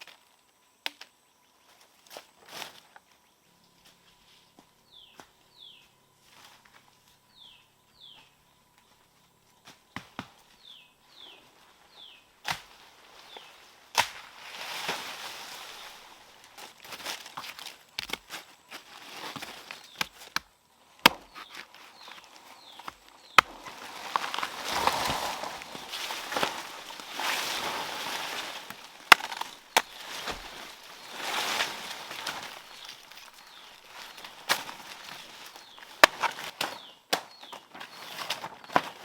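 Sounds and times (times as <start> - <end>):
bird chirping: 4.8 - 6.0, 7.2 - 12.3, 21.2 - 38.1
rustling and scraping: 21.3 - 36.9, 37.5 - 39.0.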